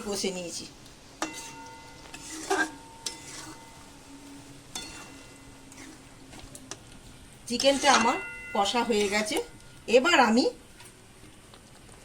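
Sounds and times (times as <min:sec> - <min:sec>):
faint sizzle: 0:00.0 - 0:12.0
faint steady hum: 0:00.0 - 0:12.0
spatula scraping a pan: 0:01.2 - 0:06.3, 0:07.5 - 0:09.6.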